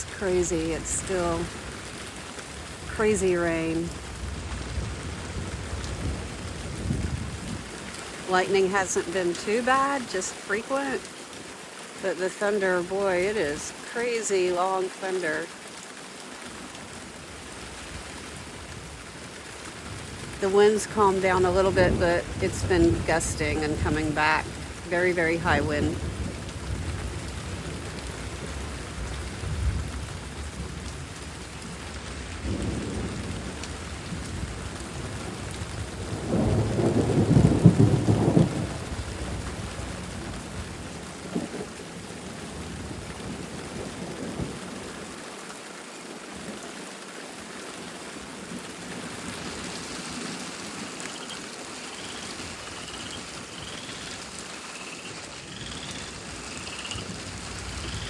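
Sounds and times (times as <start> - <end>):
heavy rain falling: 0.0 - 58.0
rolling thunder: 4.0 - 7.8, 25.9 - 41.6.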